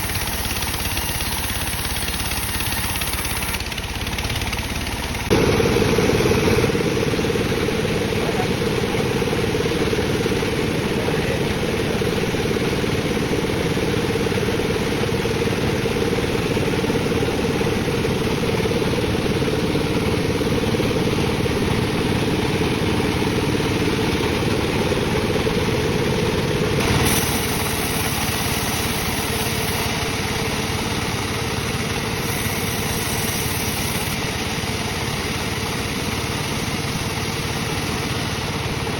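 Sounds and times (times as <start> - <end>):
bandsaw cutting wood: 0.0 - 5.4, 26.8 - 35.0.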